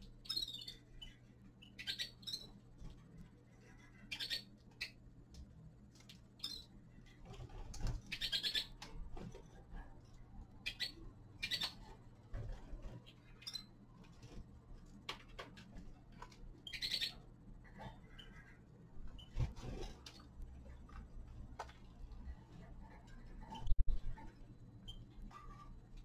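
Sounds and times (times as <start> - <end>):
finches chirping: 0.0 - 2.7, 3.6 - 5.0, 6.4 - 6.9, 7.9 - 8.8, 10.6 - 12.1, 12.8 - 13.8, 16.6 - 19.9.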